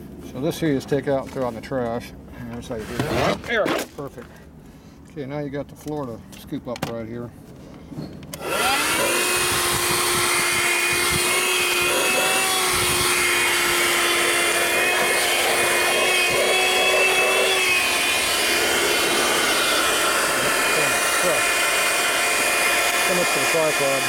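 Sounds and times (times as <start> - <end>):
handheld vacuum cleaner running: 8.4 - 24.0.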